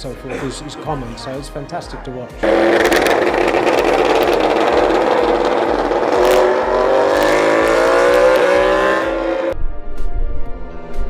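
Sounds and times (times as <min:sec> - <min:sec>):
racing engine revving: 0:02.4 - 0:09.6.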